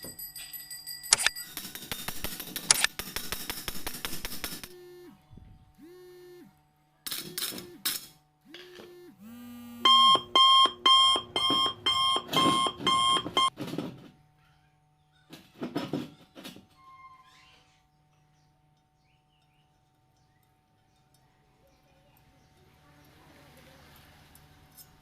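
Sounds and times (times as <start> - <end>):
loud electronic alarm beeps: 9.8 - 13.5.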